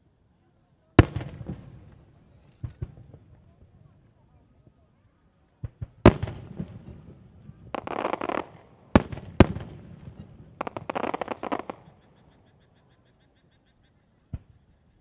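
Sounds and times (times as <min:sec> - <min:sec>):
fireworks bangs: 0:01.0 - 0:03.9, 0:05.6 - 0:12.0
rapid fireworks crackling: 0:01.0 - 0:04.5, 0:05.6 - 0:12.4.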